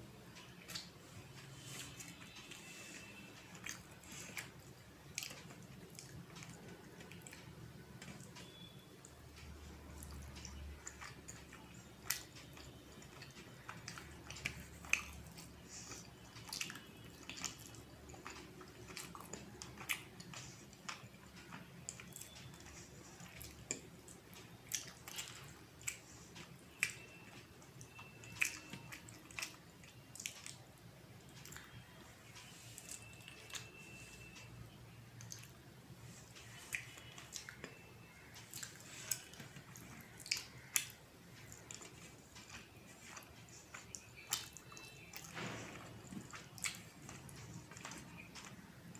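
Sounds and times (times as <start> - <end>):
person chewing: 0.4 - 8.8, 9.8 - 48.9
wet mouth clicks and smacks: 38.4 - 45.3.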